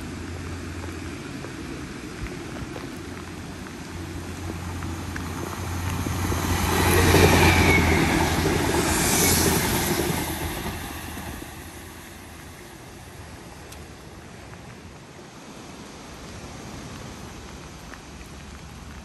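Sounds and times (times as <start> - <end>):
train passing: 0.0 - 15.2
high squeal: 6.2 - 12.0.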